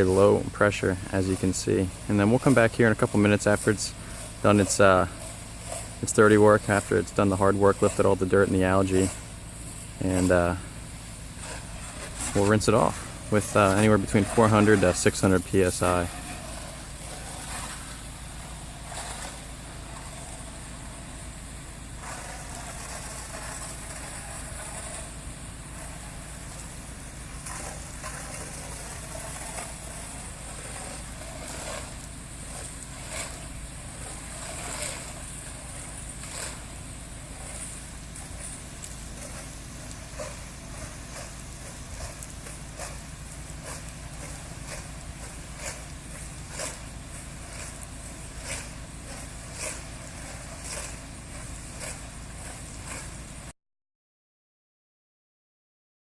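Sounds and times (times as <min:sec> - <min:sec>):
pressure washer engine running: 0:00.0 - 0:53.5
water spraying hiss: 0:00.0 - 0:53.5.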